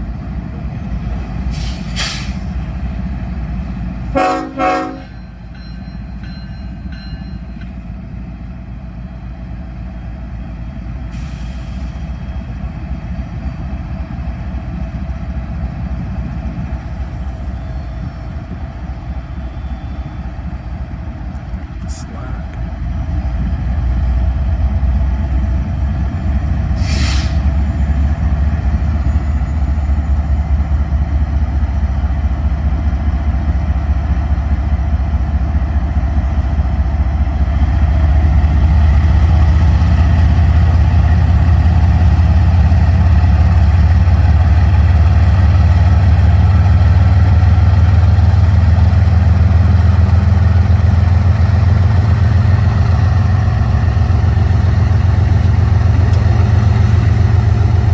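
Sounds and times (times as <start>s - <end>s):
diesel locomotive drone: 0.0s - 57.9s
air brakes hissing: 1.4s - 2.6s, 11.1s - 12.2s, 25.9s - 27.9s.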